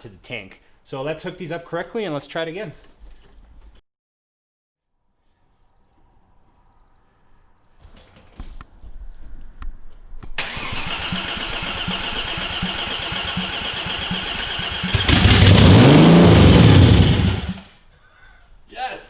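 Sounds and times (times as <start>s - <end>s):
engine cranking on starter: 10.4s - 17.6s
engine running: 10.4s - 17.7s.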